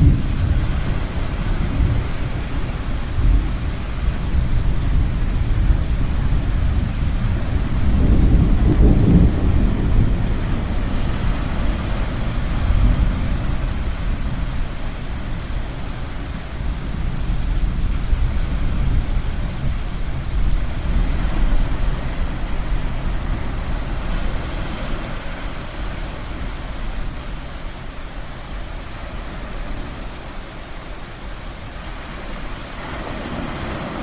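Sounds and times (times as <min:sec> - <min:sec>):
ocean waves rushing: 0:00.0 - 0:17.2, 0:17.9 - 0:34.0
deep rumble of thunder: 0:00.0 - 0:25.0.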